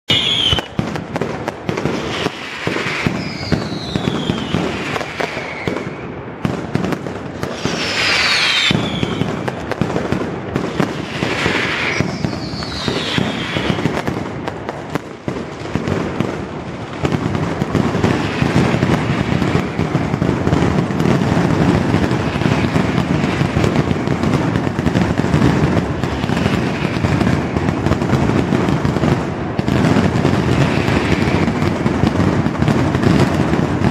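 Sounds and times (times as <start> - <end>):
falling firework whistles: 0.1 - 0.9, 1.7 - 9.8, 10.6 - 14.1, 18.0 - 23.9, 24.9 - 28.3, 30.4 - 32.2
rapid firecracker bangs: 0.1 - 33.9.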